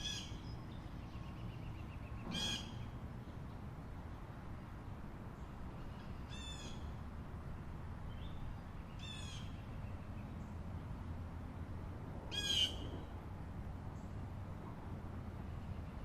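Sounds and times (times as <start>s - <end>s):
bird harsh calls: 12.3s - 12.9s.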